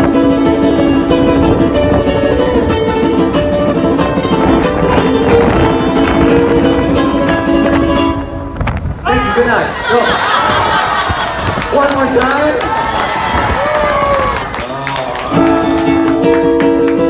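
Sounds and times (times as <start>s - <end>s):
ukulele strumming and plucking: 0.0s - 9.0s, 15.2s - 17.0s.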